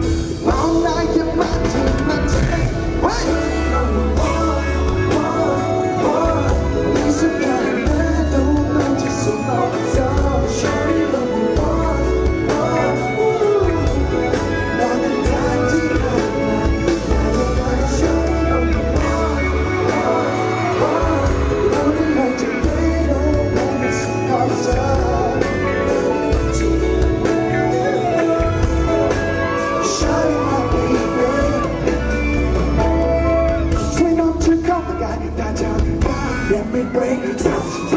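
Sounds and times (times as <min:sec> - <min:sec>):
live pop music with pulsing bass: 0:00.0 - 0:37.9
person singing: 0:00.0 - 0:37.9.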